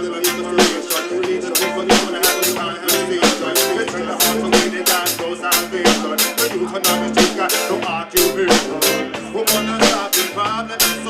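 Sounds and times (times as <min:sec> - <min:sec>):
drums steady beat: 0:00.0 - 0:11.0
reggae band playing: 0:00.0 - 0:11.0.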